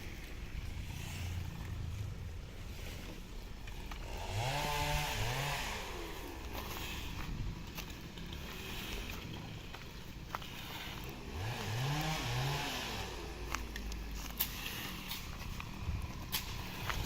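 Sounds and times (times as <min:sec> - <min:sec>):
chainsaw engine revving: 0:00.7 - 0:07.2, 0:10.4 - 0:17.0.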